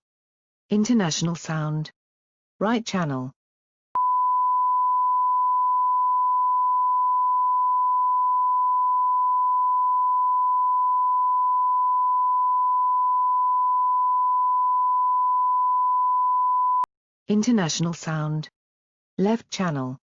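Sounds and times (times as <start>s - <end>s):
sine wave test tone: 4.0s - 16.9s.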